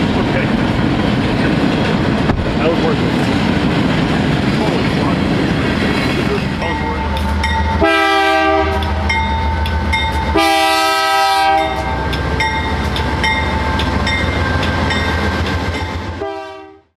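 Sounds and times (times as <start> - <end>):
locomotive rumble: 0.0 - 16.8
locomotive horn chord: 6.6 - 13.2, 16.0 - 16.9.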